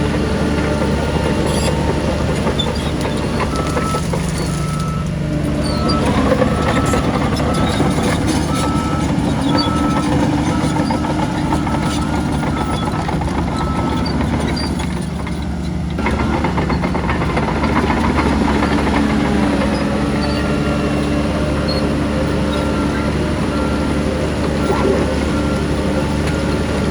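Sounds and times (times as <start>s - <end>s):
heavy diesel machinery running: 0.0s - 26.9s
reversing alarm beeping: 3.4s - 14.2s, 20.2s - 26.9s.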